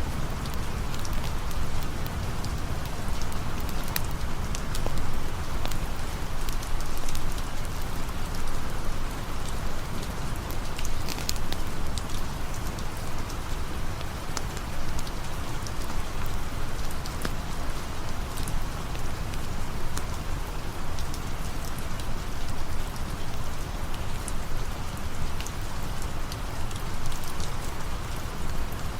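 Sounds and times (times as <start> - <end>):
rain patter: 0.0 - 28.9
sharp raindrop clicks: 0.0 - 28.9.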